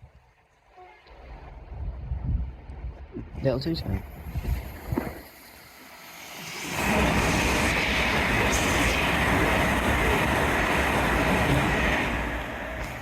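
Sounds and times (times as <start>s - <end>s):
train passing at speed: 4.3s - 13.0s.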